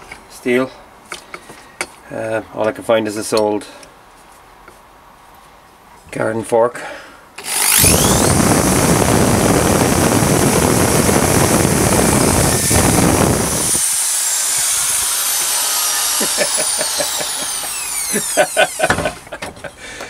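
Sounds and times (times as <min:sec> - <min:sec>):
drill bit grinding metal: 0:07.4 - 0:19.1
hammer drill whining: 0:07.4 - 0:19.2.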